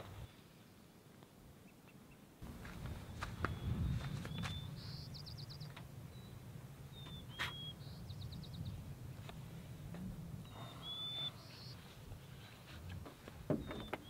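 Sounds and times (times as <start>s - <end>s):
steady low rumble: 2.4s - 13.5s
small bird singing: 3.0s - 8.9s, 10.4s - 12.5s, 13.5s - 14.0s
thin whistled bird calls: 3.1s - 8.8s, 10.4s - 12.0s.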